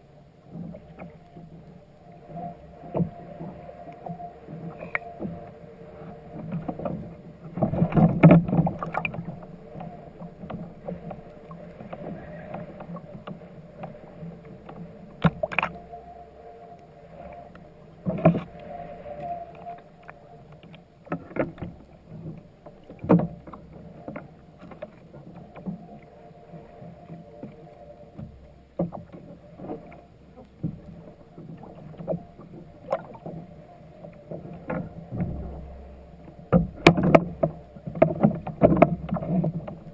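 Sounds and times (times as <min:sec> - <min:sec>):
water splashing against hull: 0:00.0 - 0:39.9.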